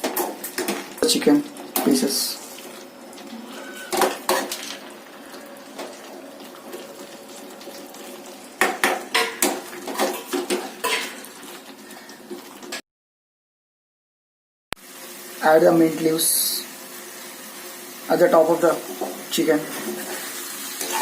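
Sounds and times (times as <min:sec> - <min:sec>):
utensil scraping a pan: 0:19.7 - 0:21.0.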